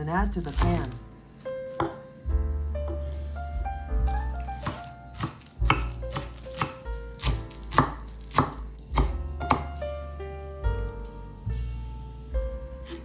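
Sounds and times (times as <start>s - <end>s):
background music: 0.0s - 13.0s
knife chopping on cutting board: 0.4s - 1.0s, 1.8s - 2.0s, 4.0s - 9.8s.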